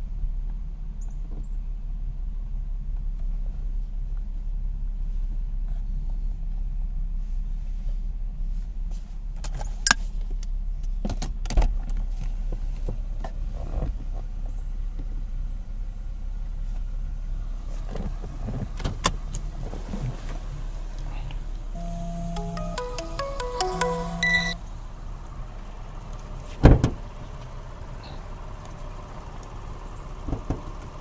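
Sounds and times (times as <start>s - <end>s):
car engine idling: 24.6s - 31.0s.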